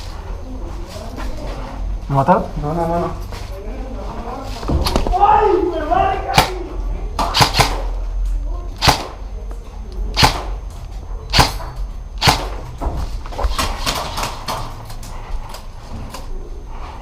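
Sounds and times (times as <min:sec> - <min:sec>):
airsoft gun shots: 0:06.3 - 0:06.6, 0:07.2 - 0:07.8, 0:08.8 - 0:09.2, 0:10.2 - 0:10.6, 0:11.3 - 0:11.6, 0:12.2 - 0:12.6.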